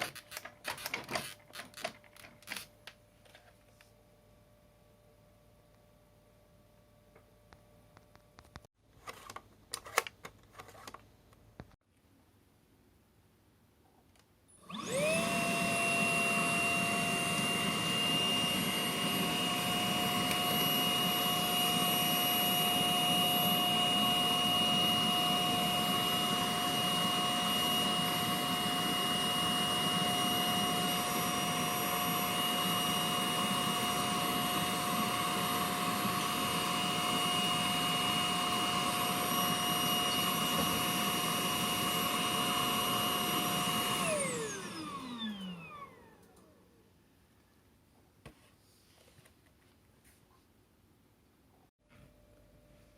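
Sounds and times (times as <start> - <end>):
vacuum cleaner motor whining: 14.5 - 46.7.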